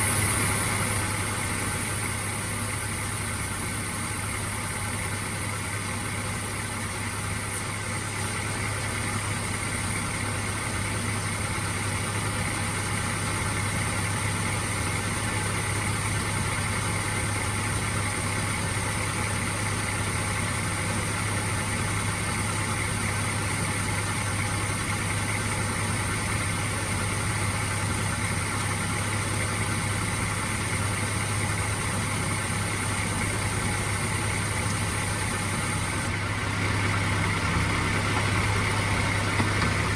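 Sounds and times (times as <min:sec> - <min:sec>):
faint high whine: 0:00.0 - 0:12.8, 0:19.1 - 0:36.1
engine idling: 0:00.0 - 0:39.9.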